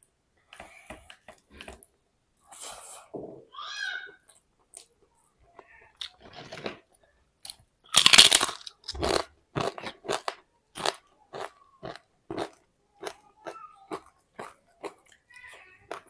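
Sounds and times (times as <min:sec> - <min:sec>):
crunchy chewing: 0:07.4 - 0:13.2, 0:13.9 - 0:16.0.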